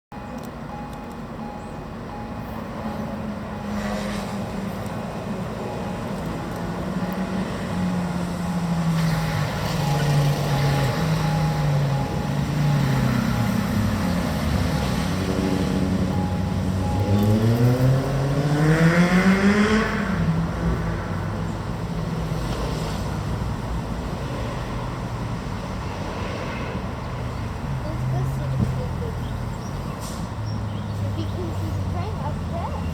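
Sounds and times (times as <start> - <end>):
crossing warning signal tone: 0.1 - 20.3.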